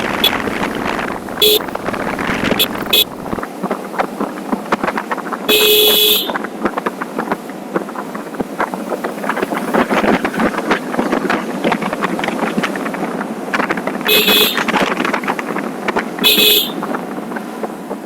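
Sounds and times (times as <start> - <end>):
wind buffeting microphone: 0.0 - 18.0
vehicle horn honking: 0.1 - 0.8, 1.4 - 3.3, 5.5 - 6.4, 14.1 - 14.7, 16.2 - 16.9.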